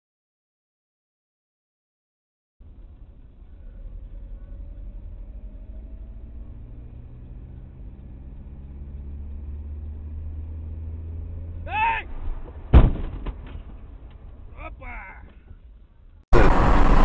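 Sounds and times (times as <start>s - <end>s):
vehicle interior rumble: 2.6s - 17.0s
high-pitched rising and falling tone: 16.3s - 17.0s.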